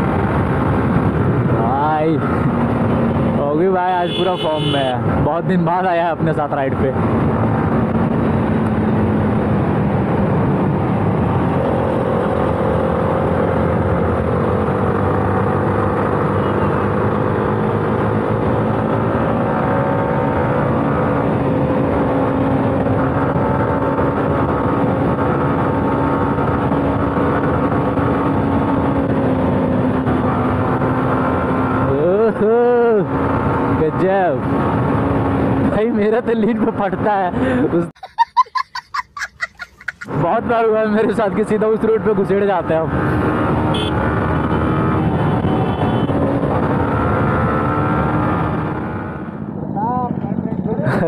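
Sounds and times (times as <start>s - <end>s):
motorcycle engine cruising: 39.7s - 51.0s.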